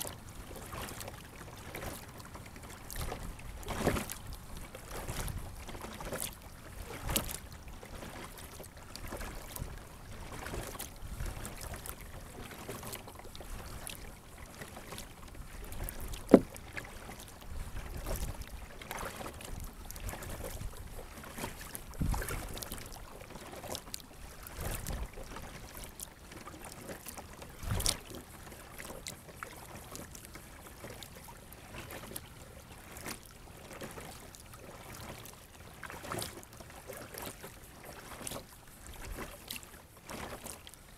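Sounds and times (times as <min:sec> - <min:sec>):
kayak paddle splashing in water: 0:00.0 - 0:40.9
paddle knocking on kayak: 0:15.7 - 0:16.9, 0:22.0 - 0:22.6.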